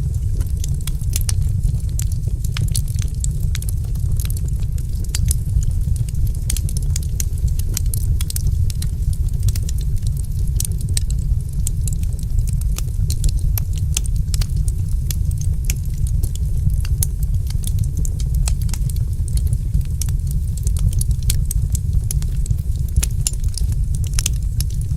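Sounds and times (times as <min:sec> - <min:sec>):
fire crackling and popping: 0:00.0 - 0:24.9
low rumble: 0:00.0 - 0:24.9.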